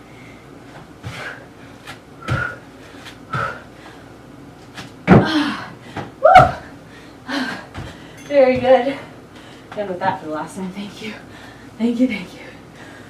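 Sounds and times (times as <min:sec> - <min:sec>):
feet landing thuds: 0:00.7 - 0:03.6, 0:04.7 - 0:06.7, 0:07.6 - 0:08.8.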